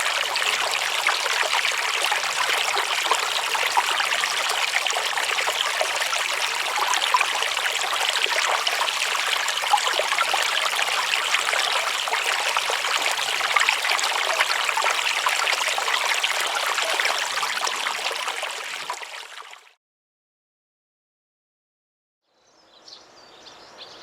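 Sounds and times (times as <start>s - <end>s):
stream trickling and splashing: 0.0s - 19.8s.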